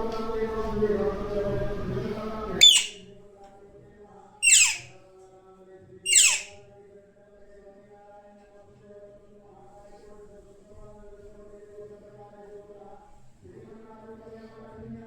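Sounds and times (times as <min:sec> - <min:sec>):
parrot squawking: 0:02.6 - 0:03.0, 0:04.4 - 0:04.9, 0:06.1 - 0:06.6.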